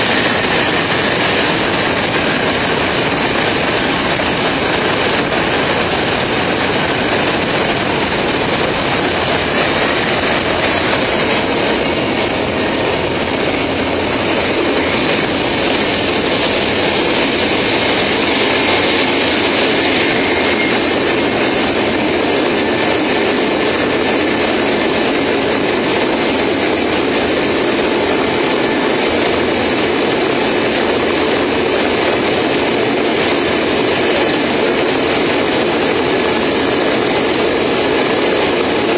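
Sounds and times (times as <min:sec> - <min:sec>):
landing gear wheel rumble and airflow: 0:00.0 - 0:38.9.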